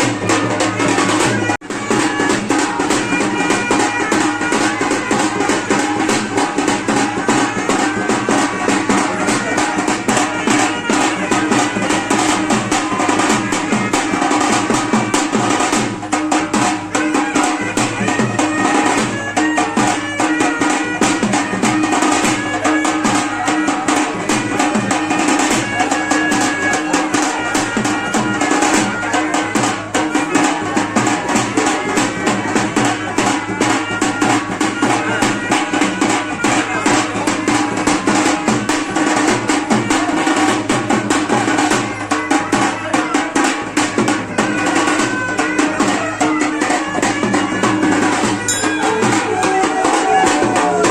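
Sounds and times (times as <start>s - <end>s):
fast dense drumming: 47.1s - 50.9s
melody line: 48.5s - 50.0s.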